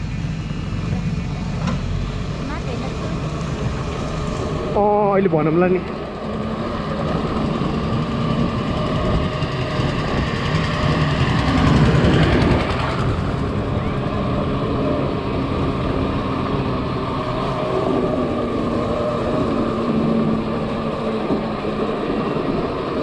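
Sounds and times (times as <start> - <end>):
wind rumble on microphone: 0.0 - 23.0.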